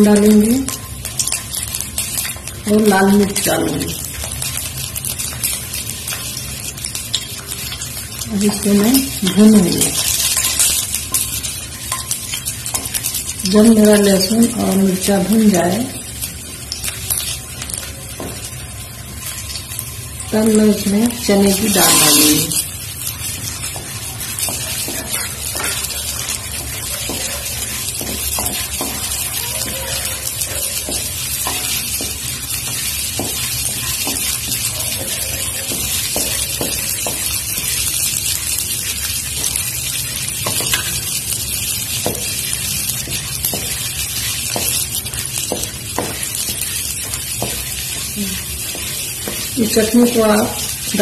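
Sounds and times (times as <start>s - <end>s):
food sizzling in oil: 0.0s - 51.0s
wooden spatula scraping pan: 23.2s - 37.3s.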